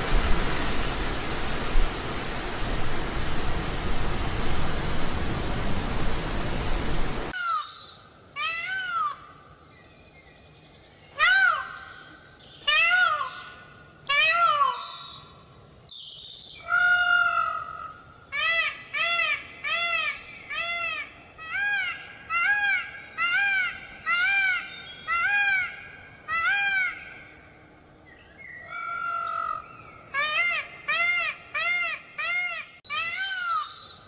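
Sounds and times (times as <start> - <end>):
peacock calling: 11.1 - 15.2, 16.6 - 27.4, 28.6 - 34.0.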